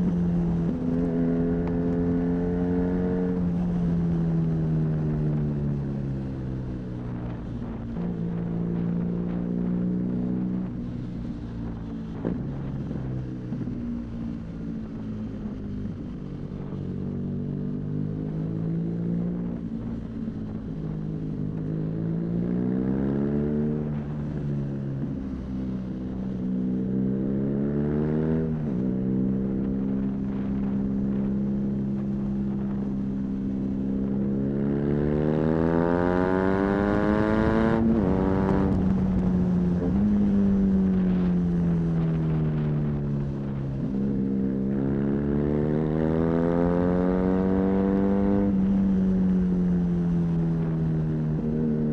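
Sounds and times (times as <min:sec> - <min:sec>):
motorcycle accelerating through gears: 0:00.0 - 0:51.9
wind rush: 0:28.3 - 0:51.9.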